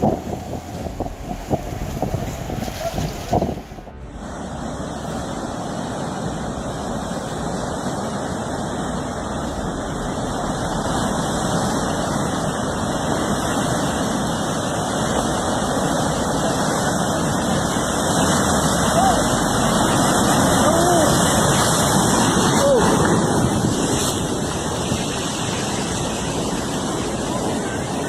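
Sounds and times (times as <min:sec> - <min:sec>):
surf on open water: 0:00.0 - 0:28.0
wind: 0:00.0 - 0:28.0.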